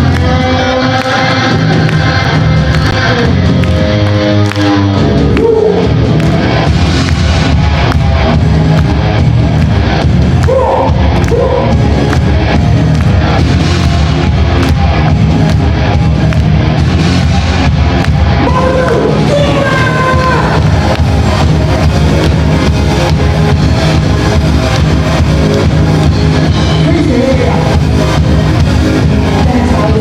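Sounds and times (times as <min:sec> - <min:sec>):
person singing: 0:00.0 - 0:05.9, 0:29.0 - 0:30.0
drum kit and bass: 0:00.0 - 0:30.0.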